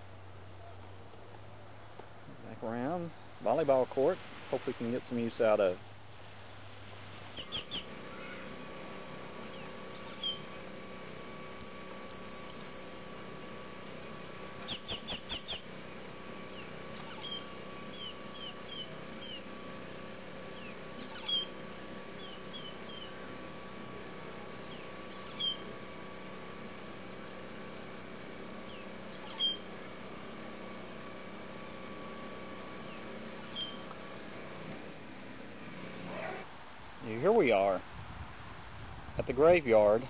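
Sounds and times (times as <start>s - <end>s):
faint steady hum: 0.0s - 40.0s
small birds chirping: 7.3s - 8.5s, 9.4s - 10.5s, 11.5s - 13.0s, 14.6s - 15.8s, 16.5s - 19.6s, 20.5s - 21.6s, 22.2s - 23.2s, 24.6s - 26.2s, 28.6s - 30.0s, 32.8s - 33.9s.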